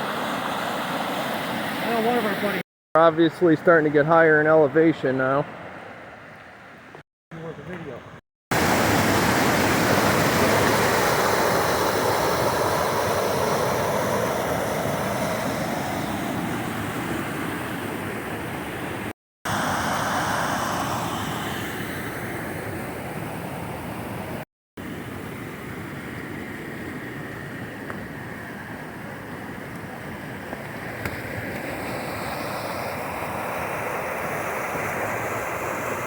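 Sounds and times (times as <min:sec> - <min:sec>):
rushing creek water: 0:08.5 - 0:16.6.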